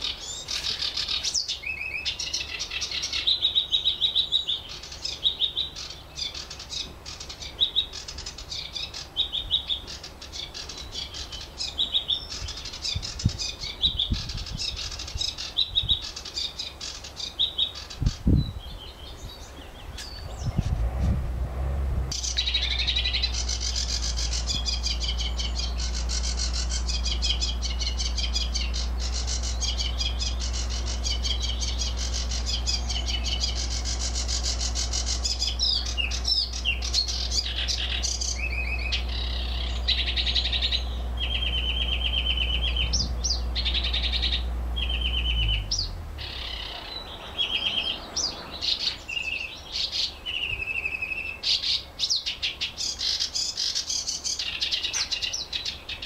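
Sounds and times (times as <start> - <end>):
songbirds chirping and twittering: 0.0 - 56.0
steady low hum: 18.0 - 48.6
short even bird trills: 22.1 - 56.0.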